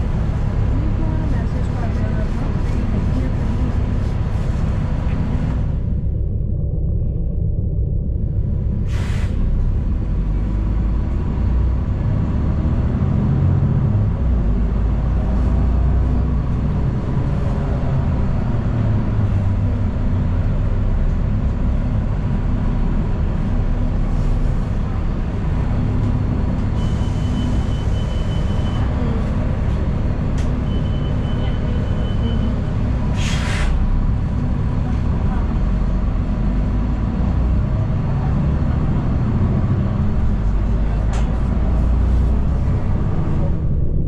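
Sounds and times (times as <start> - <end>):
bus engine and road rumble: 0.0 - 44.0
air hiss: 33.2 - 33.8.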